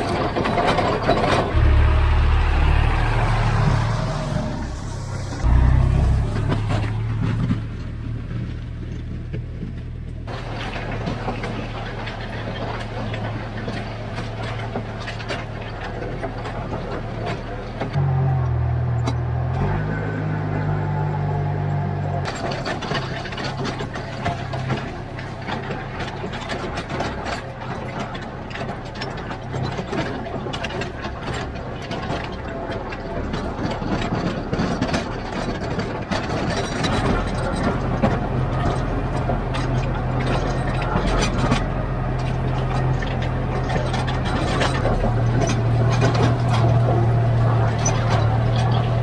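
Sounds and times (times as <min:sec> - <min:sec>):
heavy machine engine running: 0:00.0 - 0:49.0
clicks and rattles: 0:22.2 - 0:49.0.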